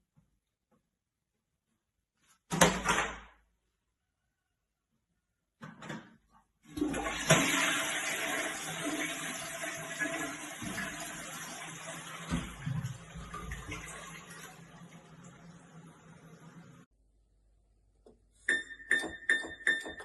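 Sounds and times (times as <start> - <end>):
toilet flushing: 6.7 - 16.9.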